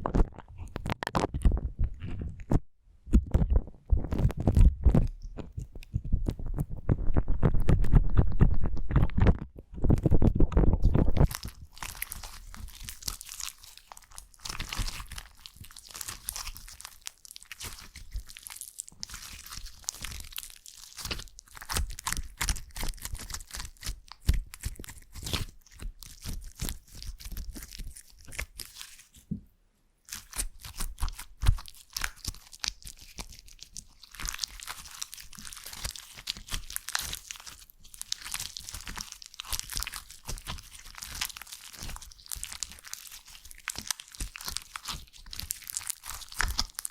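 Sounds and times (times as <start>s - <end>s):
slime squishing with crackling pops: 0.0s - 29.3s, 30.1s - 46.9s.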